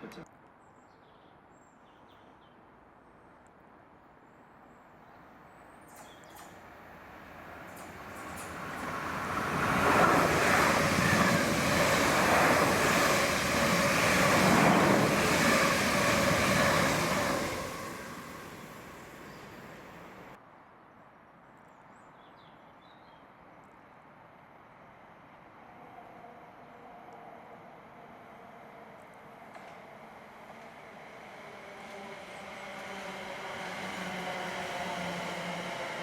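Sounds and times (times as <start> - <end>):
passenger train passing: 6.0 - 20.4, 25.6 - 36.0.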